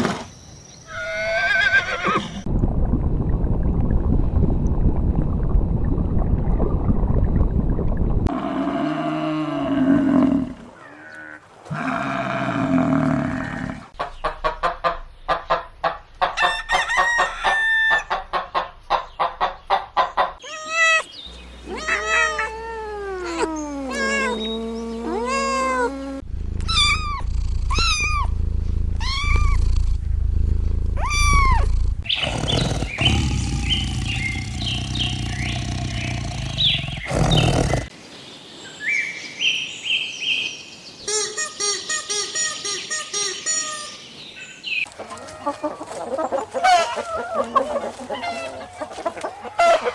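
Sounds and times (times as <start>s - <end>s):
animal calls: 20.4s - 37.9s.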